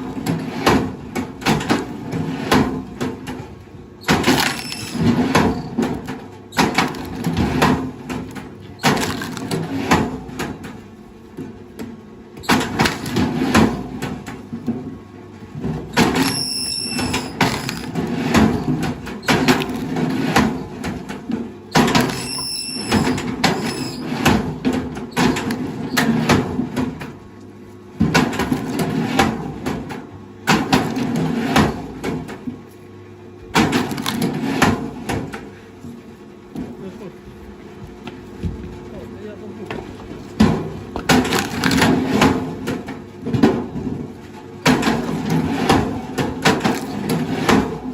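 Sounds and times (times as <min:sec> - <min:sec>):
heavy machinery working: 0:04.0 - 0:10.0, 0:15.8 - 0:26.4
high squeal: 0:16.2 - 0:17.3, 0:22.2 - 0:24.0.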